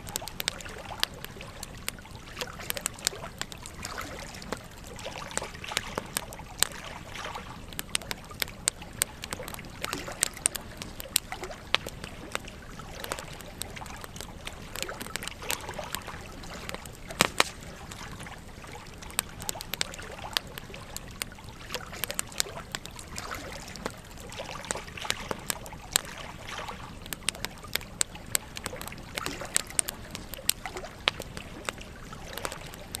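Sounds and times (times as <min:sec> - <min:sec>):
campfire crackling and popping: 0:00.0 - 0:33.0
fire rushing: 0:07.6 - 0:18.3.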